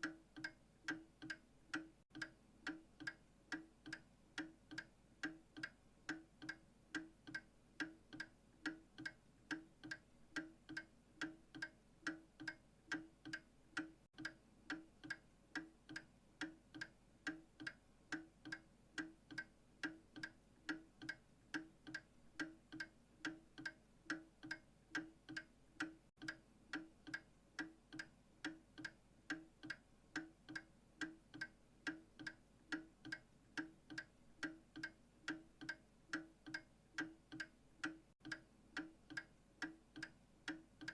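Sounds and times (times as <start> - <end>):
clock ticking: 0.0 - 40.9.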